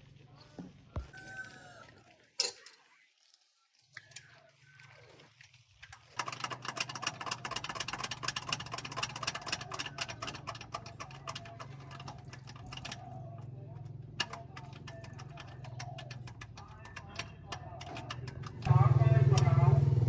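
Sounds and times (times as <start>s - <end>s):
rapid clatter: 5.8s - 19.8s
engine humming: 6.7s - 20.0s.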